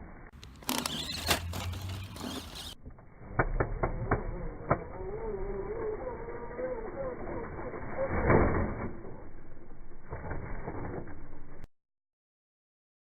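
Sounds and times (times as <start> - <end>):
toy car motor whirring: 0.4 - 2.8, 3.8 - 8.2.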